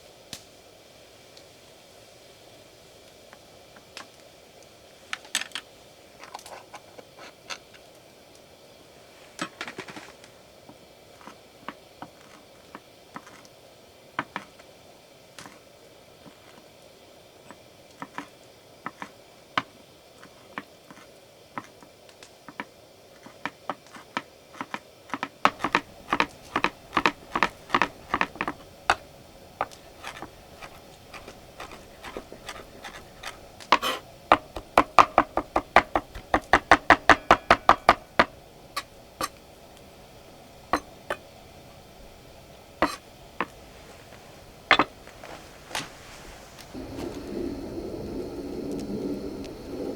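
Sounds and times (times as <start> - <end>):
knife chopping on cutting board: 24.6 - 38.3.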